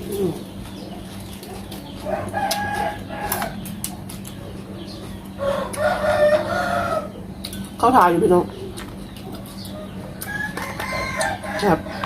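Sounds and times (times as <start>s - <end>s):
rooster crowing: 2.0s - 3.6s, 5.4s - 7.2s, 10.2s - 12.0s.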